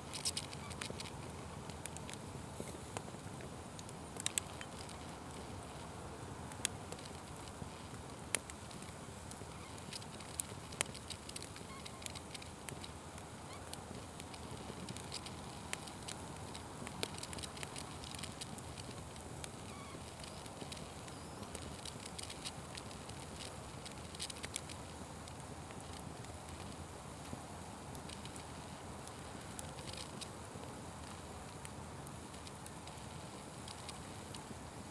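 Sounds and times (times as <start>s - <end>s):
fire crackling and popping: 0.0s - 34.9s.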